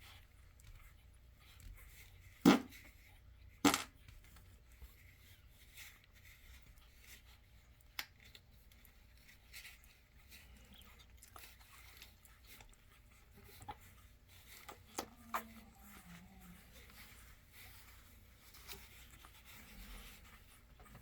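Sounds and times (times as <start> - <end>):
puppies suckling: 0.0 - 21.0
puppy whimper: 14.9 - 17.6.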